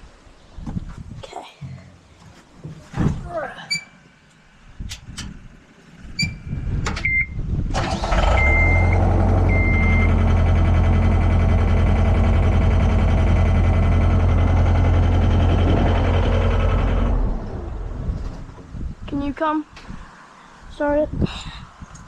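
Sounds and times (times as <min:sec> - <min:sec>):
diesel engine cranking and running: 0:07.0 - 0:18.6.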